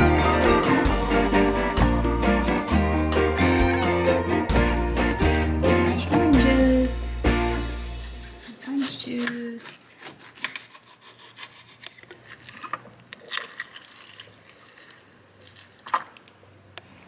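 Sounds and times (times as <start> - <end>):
oranges rubbing and scraping: 6.0 - 15.9
small clicks and squishes: 8.6 - 17.0.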